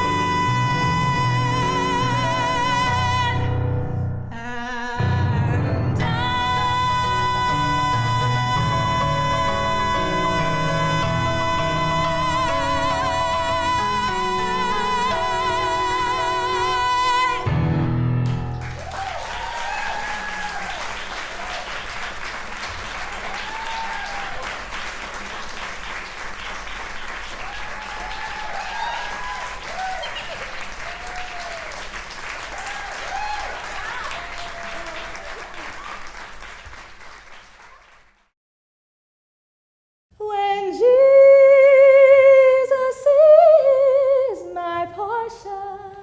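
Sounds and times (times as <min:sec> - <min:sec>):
audience applause: 0:18.2 - 0:38.3.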